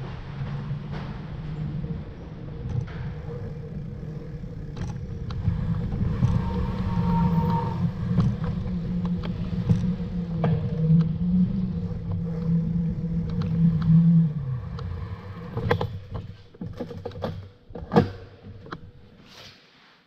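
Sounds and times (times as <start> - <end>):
low motor hum: 0.0 - 17.6.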